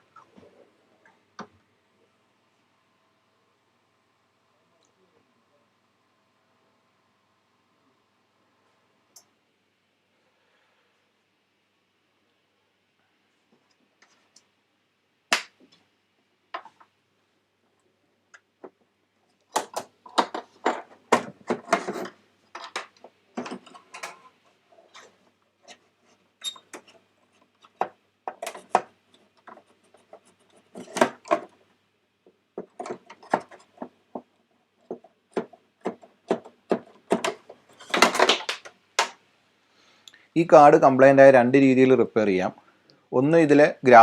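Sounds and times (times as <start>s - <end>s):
hardware clicking and rattling: 19.5s - 24.3s, 32.6s - 39.2s.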